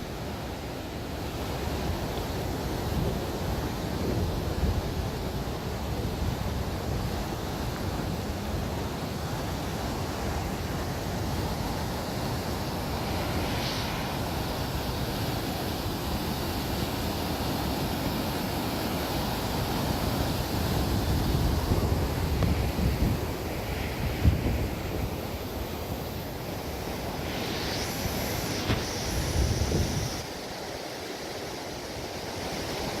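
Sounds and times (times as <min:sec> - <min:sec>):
wind on microphone: 0:19.5 - 0:30.8.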